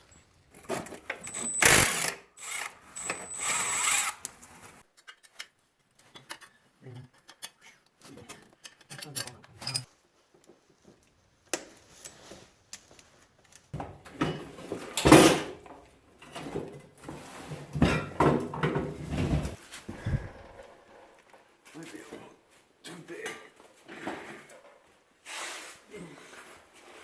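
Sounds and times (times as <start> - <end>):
metal tools clinking: 0.0 - 4.6.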